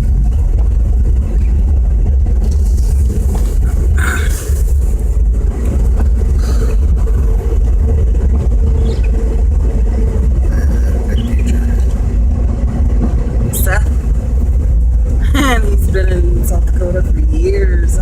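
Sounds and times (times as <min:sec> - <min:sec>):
car engine and tyres rumbling: 0:00.0 - 0:18.0
faint hum: 0:00.0 - 0:18.0.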